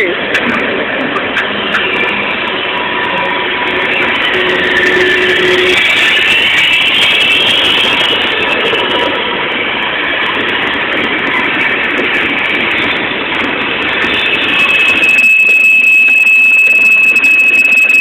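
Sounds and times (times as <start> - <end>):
freight train rolling on rails: 0.0 - 18.0
high-pitched wheel squeal: 1.2 - 9.2, 13.8 - 18.0.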